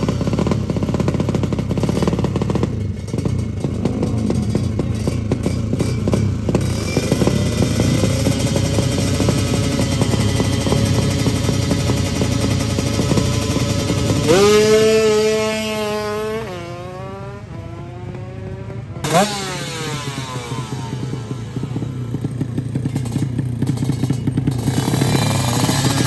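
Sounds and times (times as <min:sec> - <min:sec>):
motorcycle passing by: 0:00.0 - 0:26.0
racing motorcycles at full throttle: 0:00.0 - 0:26.0.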